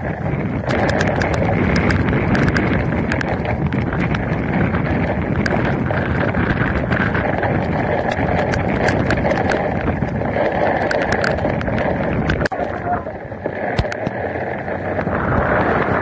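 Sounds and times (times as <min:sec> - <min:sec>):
rain and wind rushing: 0:00.0 - 0:16.0
raindrops tapping camera housing: 0:00.0 - 0:16.0.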